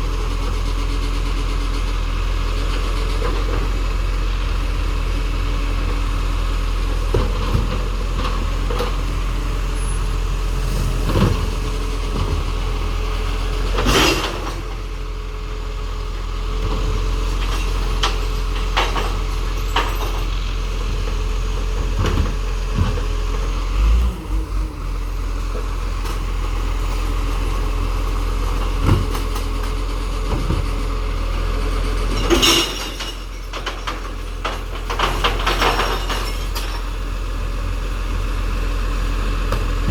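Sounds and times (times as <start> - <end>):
truck engine running: 0.0 - 39.9
clunks and knocks: 7.0 - 9.0, 11.0 - 12.6, 16.6 - 23.4, 28.6 - 30.8, 32.1 - 36.9, 39.5 - 39.9.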